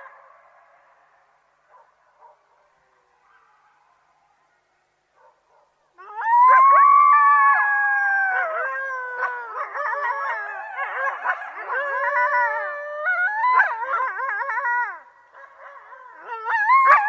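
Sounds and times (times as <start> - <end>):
coyotes howling and yipping: 5.2 - 17.0.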